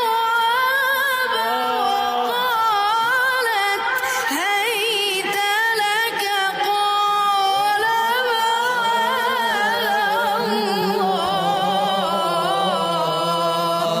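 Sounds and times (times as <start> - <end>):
solo voice chanting: 7.5 - 14.0.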